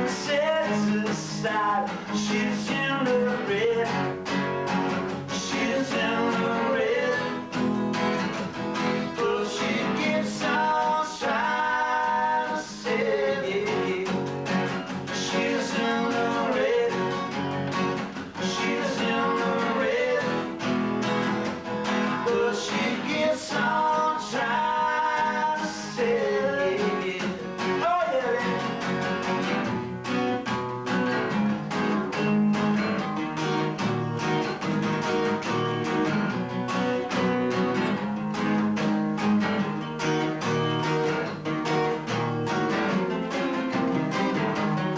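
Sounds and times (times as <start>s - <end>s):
acoustic guitar strumming: 0.0s - 44.9s
person singing: 5.3s - 7.5s, 9.2s - 14.3s, 15.1s - 17.5s, 18.4s - 20.6s, 22.2s - 28.8s.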